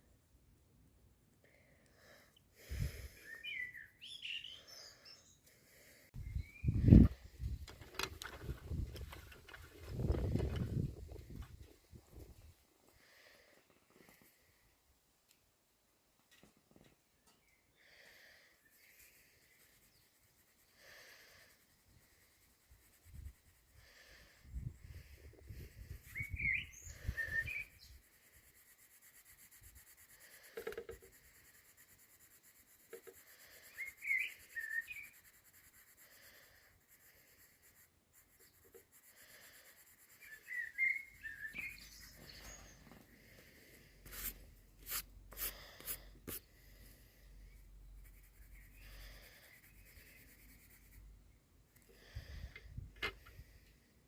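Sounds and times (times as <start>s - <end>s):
songbird chirping: 3.1s - 5.5s, 40.2s - 43.6s
pencil scratching on paper: 18.9s - 42.8s, 43.8s - 51.1s.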